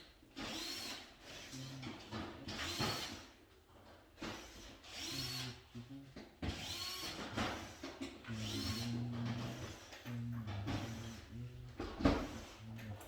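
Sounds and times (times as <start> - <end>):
electric screwdriver whining: 8.4 - 9.0.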